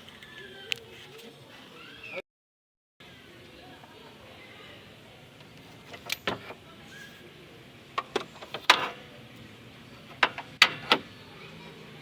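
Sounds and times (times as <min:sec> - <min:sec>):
tools knocking and clanking: 0:10.1 - 0:11.0.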